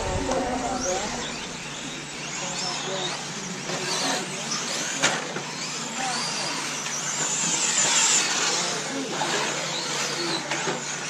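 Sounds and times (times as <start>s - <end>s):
nitro rc car engines whining: 0.0s - 11.0s.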